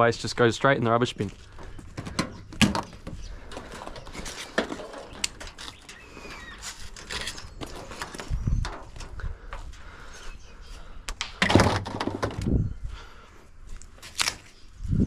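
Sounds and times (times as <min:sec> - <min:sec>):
metal and plastic parts clattering: 0:02.0 - 0:09.2.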